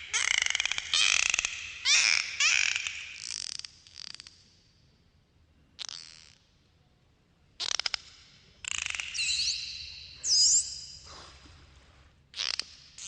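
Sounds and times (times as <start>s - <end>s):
dolphin clicks: 7.6s - 10.0s
dolphin whistles: 8.8s - 11.1s.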